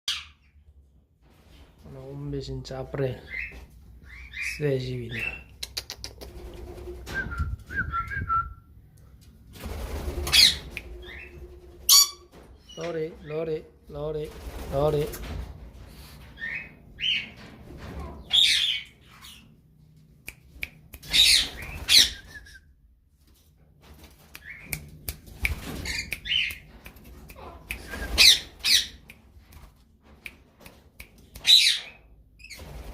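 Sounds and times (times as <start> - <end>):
parakeets squawking and chirping: 10.3 - 13.4, 16.4 - 17.3, 18.2 - 19.5, 21.1 - 22.2, 28.2 - 29.0, 31.5 - 32.6.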